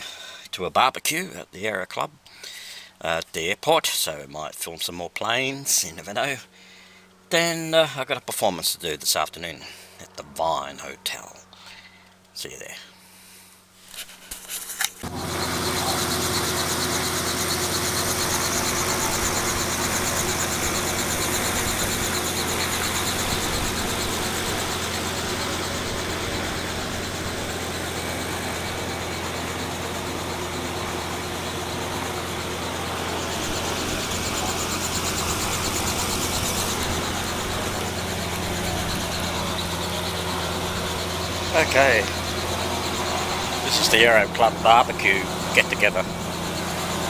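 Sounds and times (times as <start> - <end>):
engine humming: 15.0 - 47.0.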